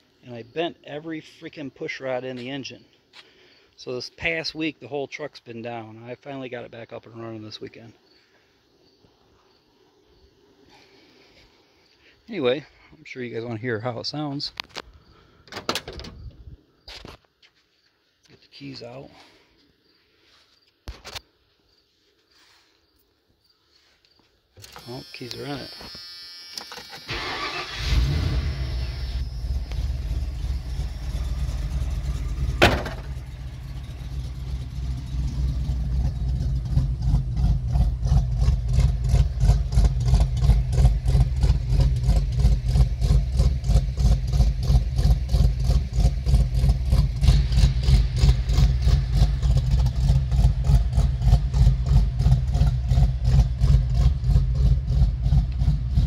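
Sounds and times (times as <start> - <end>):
car engine cranking and idling: 26.7 - 56.0.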